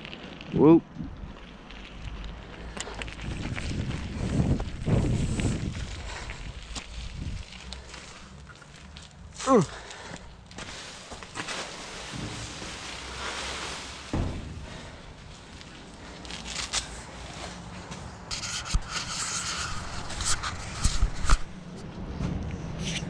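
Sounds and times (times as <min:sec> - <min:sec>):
rubbing against camera body: 0:18.3 - 0:21.6.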